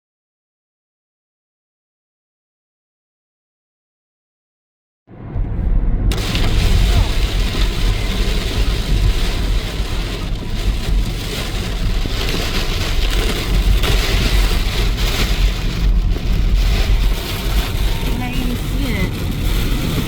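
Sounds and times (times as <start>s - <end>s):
car road rumble: 5.1s - 20.0s
rain hissing: 6.1s - 20.0s.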